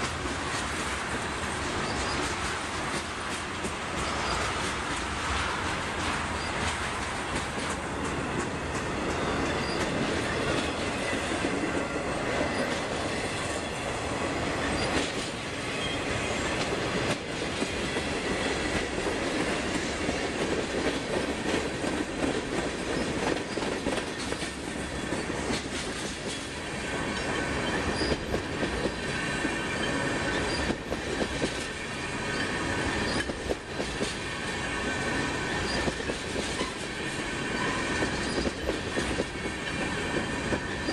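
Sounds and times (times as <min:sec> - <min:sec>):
train wheels rumbling on rail: 0:00.0 - 0:40.9
wheels clicking over rail joints: 0:00.0 - 0:40.9
faint wheel squeal: 0:09.5 - 0:09.9.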